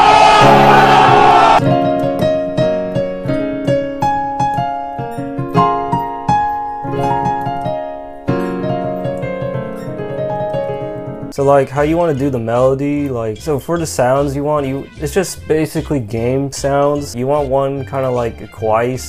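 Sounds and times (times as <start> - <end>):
electric piano chords: 0.0 - 11.4.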